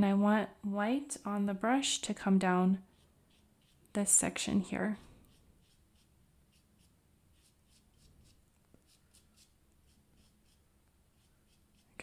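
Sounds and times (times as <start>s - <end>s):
paintbrush strokes on paper: 2.7s - 12.0s.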